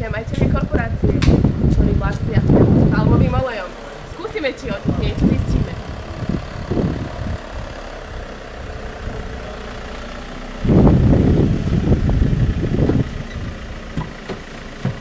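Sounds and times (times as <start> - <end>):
loud uneven low rumble: 0.0 - 15.0
minivan engine rumbling: 0.0 - 15.0.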